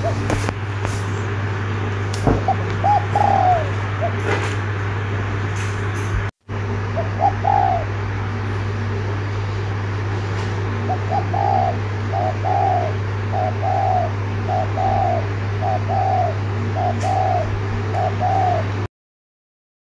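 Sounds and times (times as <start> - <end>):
dove cooing: 0.0 - 0.5, 2.3 - 4.7, 6.8 - 9.0, 10.6 - 18.9
steady low hum: 0.0 - 18.9.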